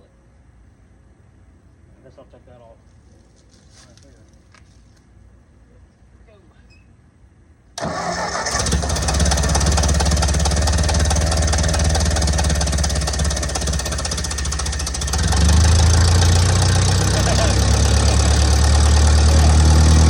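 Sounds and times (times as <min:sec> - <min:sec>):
tractor engine starting and running: 0:07.8 - 0:20.0.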